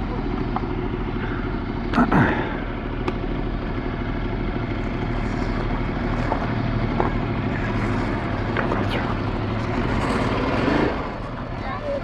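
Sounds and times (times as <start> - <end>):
motorcycle engine idling: 0.0 - 10.2.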